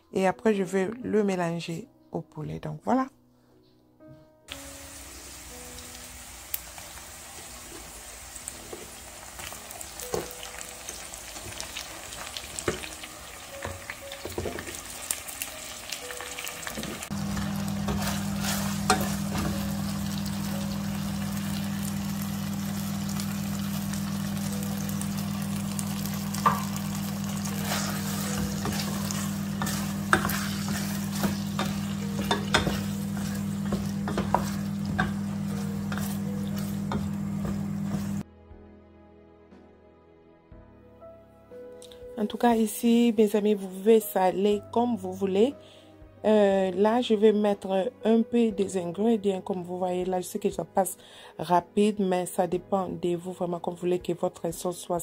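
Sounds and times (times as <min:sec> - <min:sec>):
vegetables frying in a pot: 0:04.5 - 0:38.2.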